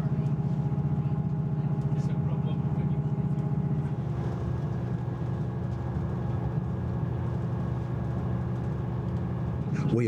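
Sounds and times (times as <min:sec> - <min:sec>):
low train rumble: 0:00.0 - 0:10.0
diesel engine drone: 0:04.0 - 0:10.0.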